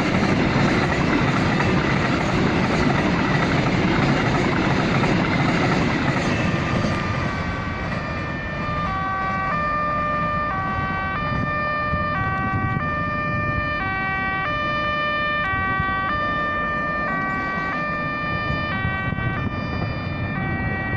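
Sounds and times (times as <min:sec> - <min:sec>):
passing train rumble: 0:00.0 - 0:20.9
level crossing two-tone alarm: 0:07.5 - 0:20.9.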